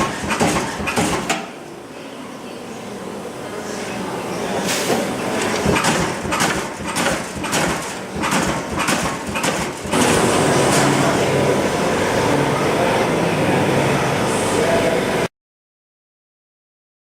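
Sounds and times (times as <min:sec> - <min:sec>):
punch press striking sheet metal: 0:00.0 - 0:01.5, 0:04.8 - 0:10.9
machine noise with low hum: 0:00.0 - 0:15.3.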